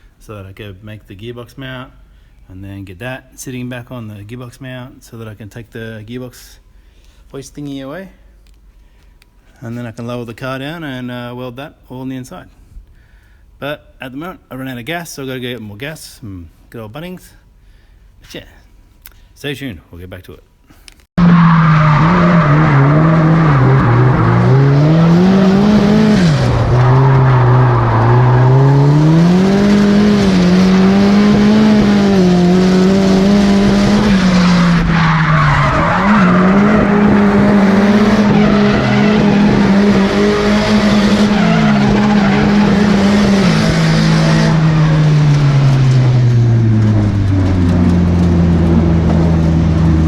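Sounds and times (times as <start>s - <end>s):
car engine revving: 21.2s - 50.0s
tyres skidding: 21.2s - 50.0s.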